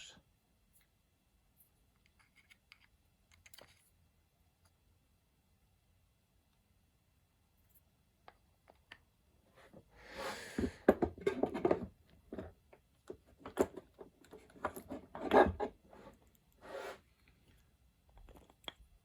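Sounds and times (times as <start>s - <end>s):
metal scraping: 15.1s - 17.0s.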